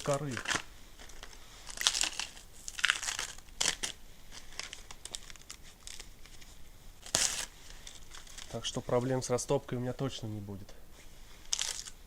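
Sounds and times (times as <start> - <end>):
bark ripping: 0.1 - 6.0, 7.0 - 7.5, 11.5 - 12.0.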